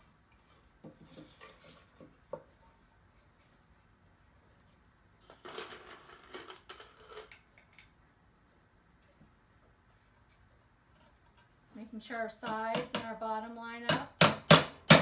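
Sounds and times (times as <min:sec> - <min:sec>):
scraping and rustling: 0:00.0 - 0:07.3.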